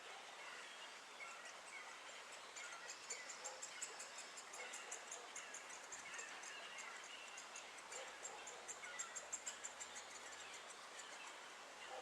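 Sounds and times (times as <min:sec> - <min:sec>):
faint songbird calls: 0:00.2 - 0:12.0.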